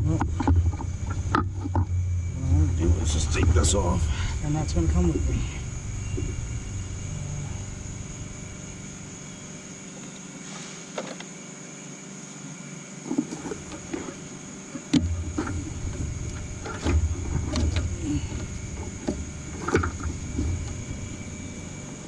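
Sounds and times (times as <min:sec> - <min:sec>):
engine parts knocking and clicking: 0:00.0 - 0:02.2, 0:14.8 - 0:21.7
low rumble of handling noise: 0:00.0 - 0:11.4, 0:13.0 - 0:22.0.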